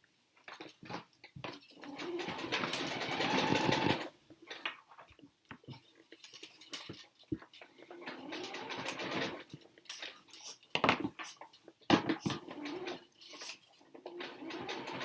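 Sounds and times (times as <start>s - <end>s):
fast mechanical rattle: 1.8s - 4.1s, 8.0s - 9.5s, 12.4s - 15.0s.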